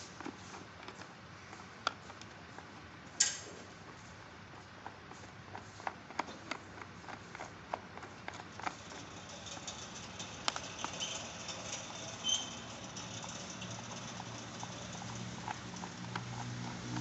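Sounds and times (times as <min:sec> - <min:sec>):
light scratchy rustle: 0:00.0 - 0:17.0
small hard parts clicking: 0:04.8 - 0:17.0.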